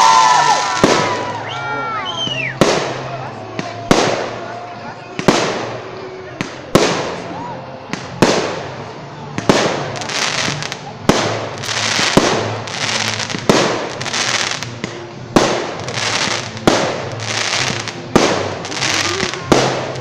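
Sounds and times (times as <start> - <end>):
crackling hiss of falling stars: 15.6 - 20.0.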